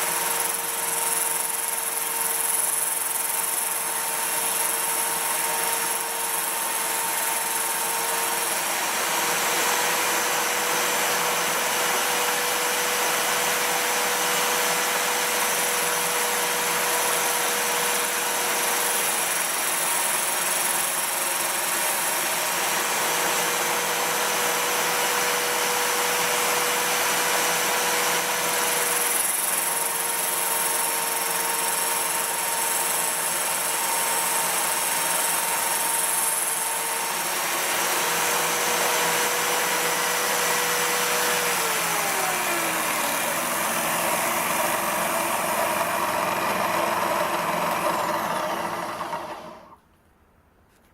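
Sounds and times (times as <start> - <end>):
steady motor hum: 23.3 - 49.8
grinder wheel grinding metal: 25.9 - 49.8.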